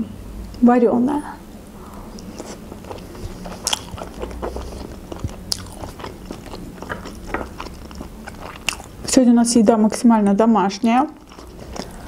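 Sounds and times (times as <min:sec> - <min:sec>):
chewing with wet mouth clicks: 0:02.1 - 0:09.2, 0:09.9 - 0:12.0.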